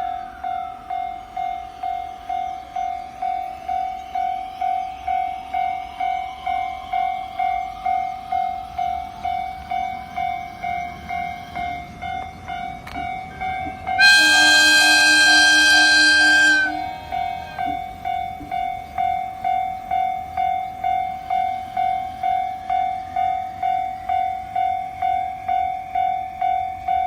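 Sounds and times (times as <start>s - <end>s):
level crossing bell ringing: 13.6s - 18.4s
loud train horn: 13.9s - 18.0s.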